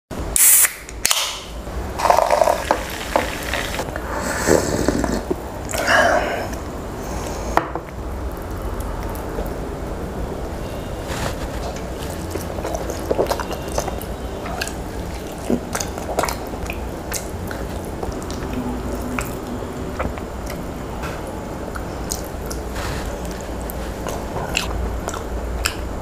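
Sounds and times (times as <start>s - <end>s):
wet chewing and lip smacking: 11.4s - 20.7s, 21.7s - 26.0s.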